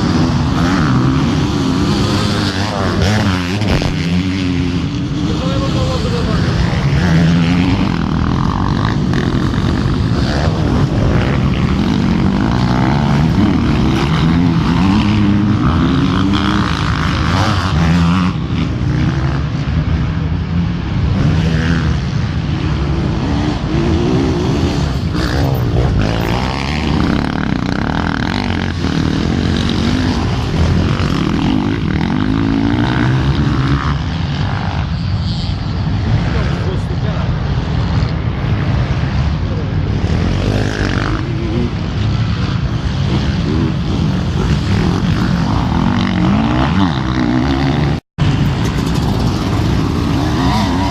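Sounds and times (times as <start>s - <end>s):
motorcycle engines revving: 0.0s - 50.9s.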